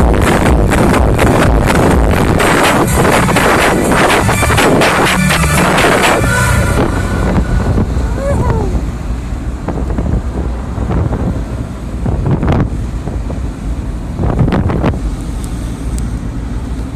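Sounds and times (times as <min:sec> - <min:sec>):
vehicle rumble and road noise: 0:00.0 - 0:16.9
wind buffeting microphone: 0:05.6 - 0:16.6.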